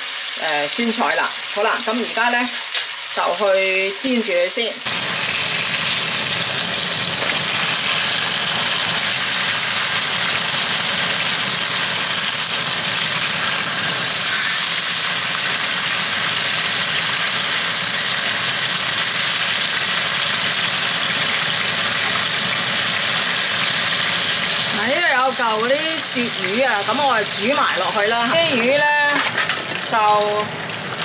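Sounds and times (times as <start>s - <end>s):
fish sizzling in a frying pan: 0.0s - 31.0s.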